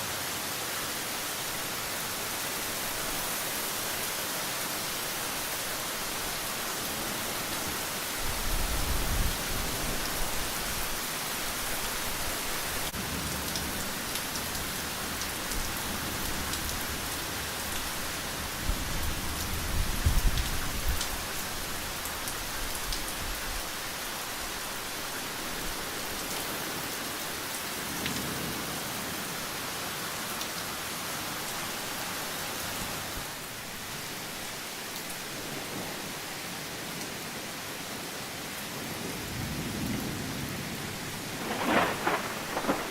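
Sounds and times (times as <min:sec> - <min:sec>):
steady rain falling: 0:00.0 - 0:42.9
thunder rumbling: 0:39.7 - 0:42.9.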